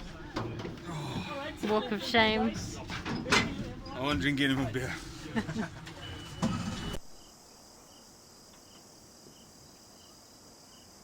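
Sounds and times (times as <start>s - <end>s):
crickets chirping: 5.3s - 11.0s.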